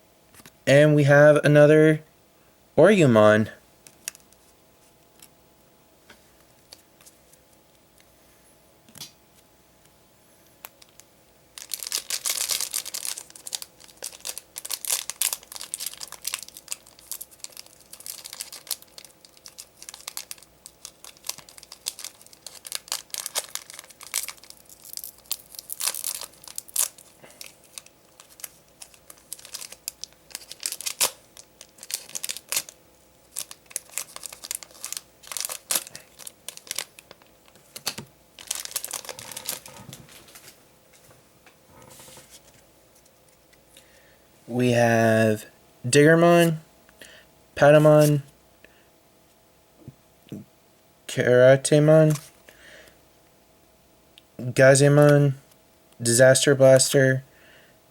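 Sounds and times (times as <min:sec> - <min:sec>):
foil wrapper tearing and crinkling: 0:11.6 - 0:39.8.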